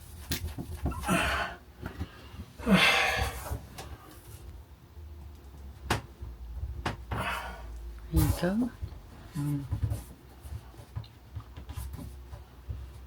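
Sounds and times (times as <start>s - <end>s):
person breathing out heavily: 1.0s - 3.6s, 7.1s - 7.8s.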